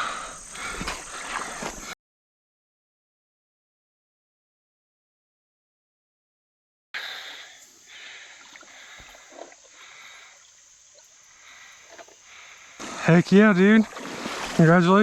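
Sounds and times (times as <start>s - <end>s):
creek water running: 0.0s - 2.0s, 7.0s - 15.0s.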